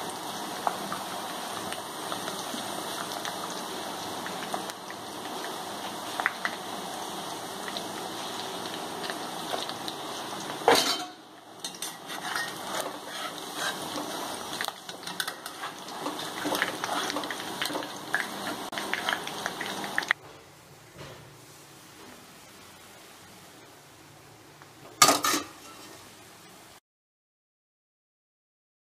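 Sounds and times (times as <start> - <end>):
chicken sizzling in hot oil: 0.0 - 20.2, 24.8 - 26.8
metal spoon scraping pan: 10.7 - 14.3, 14.9 - 19.3, 25.0 - 26.0.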